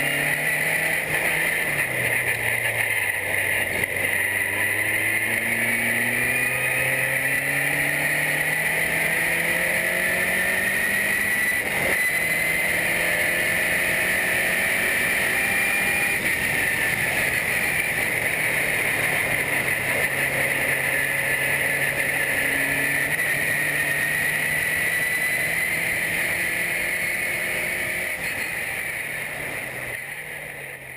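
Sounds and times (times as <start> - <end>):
race car engine accelerating: 0.0 - 30.9.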